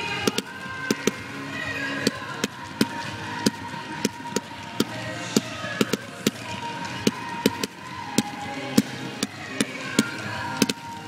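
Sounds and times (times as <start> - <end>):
fireworks popping: 0.0 - 11.0.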